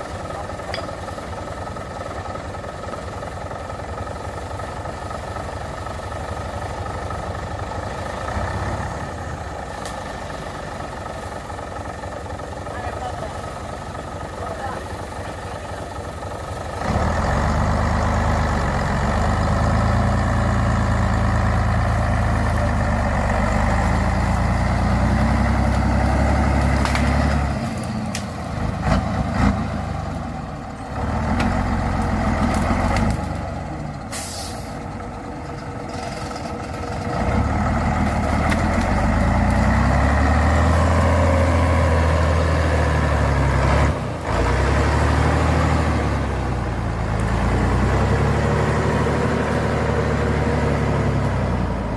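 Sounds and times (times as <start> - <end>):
truck engine working hard: 0.0 - 51.9
hissing air burst: 34.1 - 34.8.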